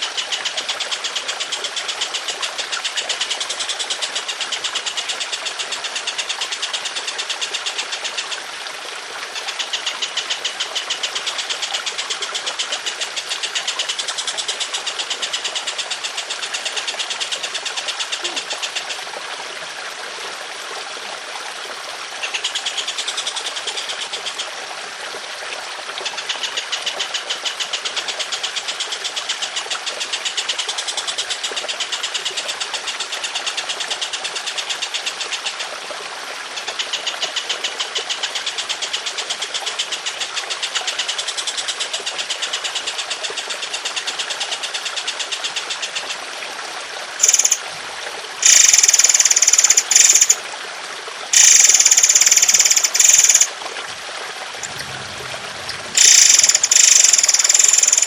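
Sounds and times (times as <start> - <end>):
running water trickling: 0.0 - 58.0
songbird rattling trill: 47.2 - 47.6, 48.4 - 50.4, 51.4 - 53.5, 54.6 - 58.0.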